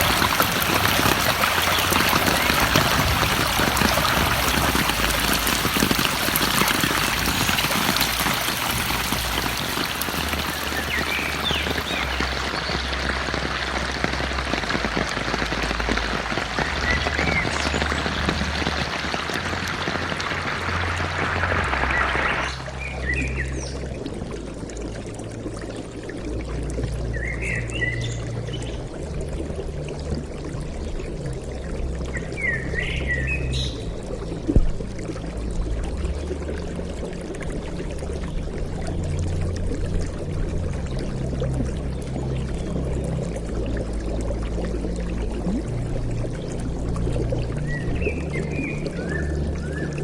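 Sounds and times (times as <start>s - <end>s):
heavy rain in a forest: 0.0s - 25.3s, 31.2s - 34.0s.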